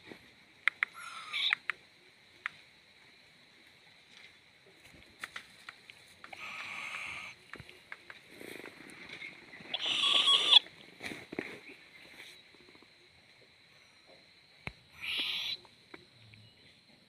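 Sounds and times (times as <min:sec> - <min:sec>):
young owl hissing calls: 0:00.9 - 0:01.7, 0:06.3 - 0:07.4, 0:09.7 - 0:10.7, 0:14.9 - 0:15.7.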